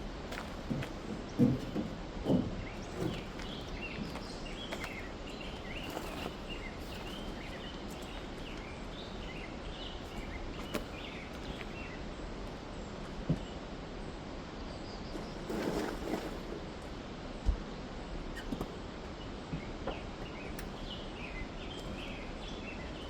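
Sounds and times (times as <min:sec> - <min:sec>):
small birds chirping: 0:01.3 - 0:13.6, 0:18.4 - 0:23.0.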